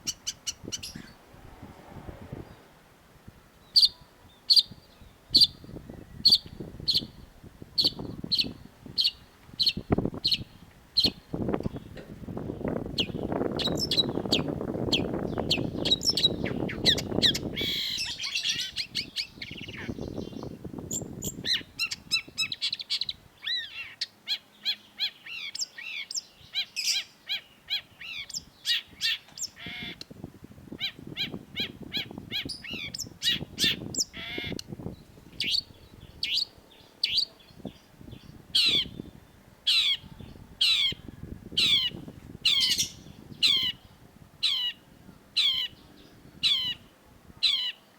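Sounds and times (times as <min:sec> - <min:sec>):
low background rumble: 0:00.0 - 0:04.3
shrike chirps and trills: 0:13.0 - 0:20.3, 0:41.6 - 0:44.8, 0:45.4 - 0:45.8.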